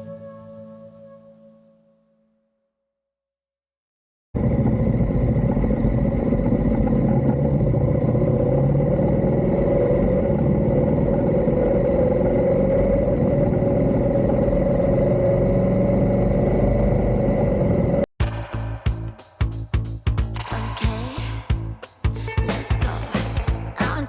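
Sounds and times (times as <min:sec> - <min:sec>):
motorcycle running: 0:04.4 - 0:19.2.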